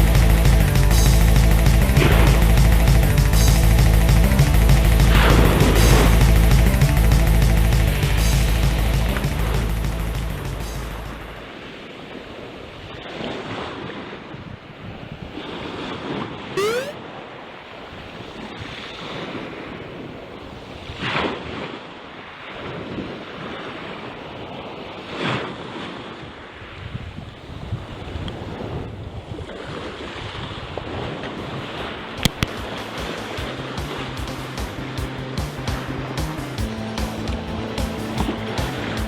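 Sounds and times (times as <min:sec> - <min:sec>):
short rising whistle: 0:16.6 - 0:17.0.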